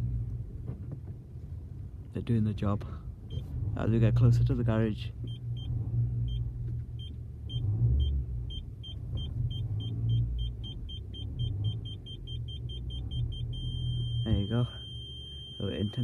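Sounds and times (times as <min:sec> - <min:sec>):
car engine idling: 0:00.0 - 0:16.0
parking sensor beeping: 0:05.3 - 0:16.0.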